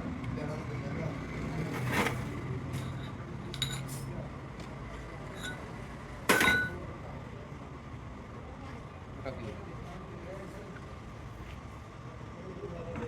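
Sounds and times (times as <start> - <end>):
metal tools clinking: 2.9 - 3.9, 5.4 - 5.6, 6.3 - 6.8
loud ringing metal clank: 6.3 - 6.8.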